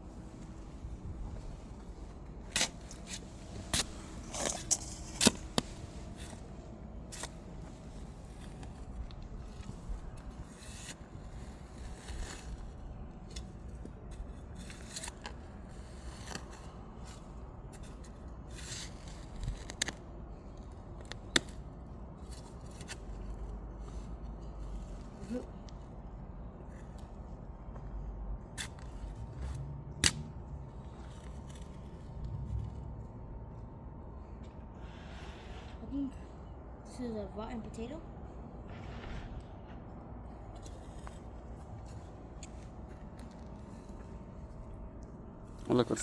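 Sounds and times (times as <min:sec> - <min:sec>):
digging tool scraping clay soil: 0:02.5 - 0:08.9, 0:09.5 - 0:13.5.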